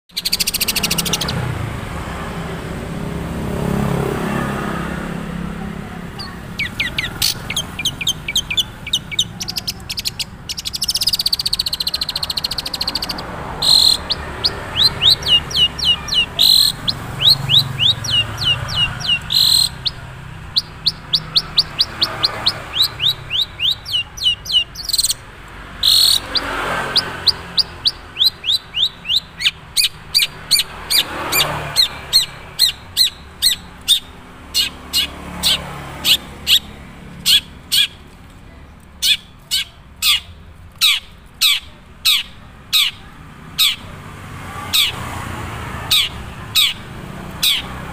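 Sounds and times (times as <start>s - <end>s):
bird harsh notes: 0.1s - 2.5s, 3.9s - 38.1s, 39.0s - 43.9s, 44.6s - 47.9s
shrike singing high falling chirps: 6.2s - 25.2s.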